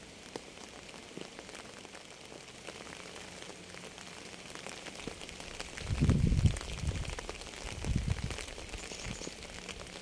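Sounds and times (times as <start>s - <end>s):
rain patter: 0.0s - 10.0s.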